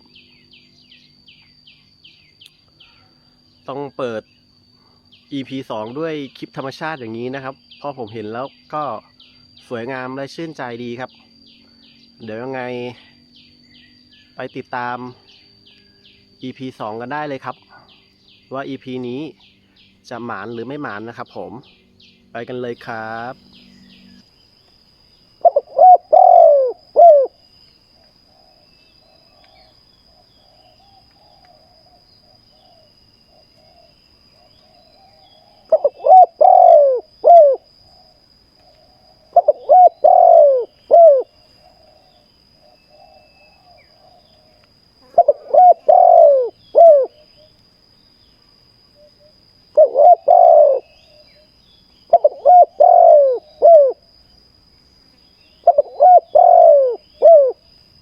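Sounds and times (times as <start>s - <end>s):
dove cooing: 25.4s - 27.4s, 28.0s - 47.5s, 49.0s - 51.5s, 52.1s - 54.1s, 55.6s - 57.7s.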